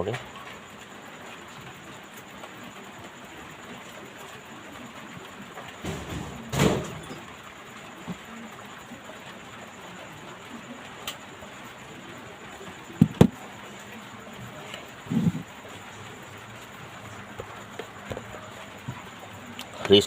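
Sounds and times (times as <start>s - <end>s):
sharp knocks: 5.8s - 7.2s, 13.0s - 13.4s.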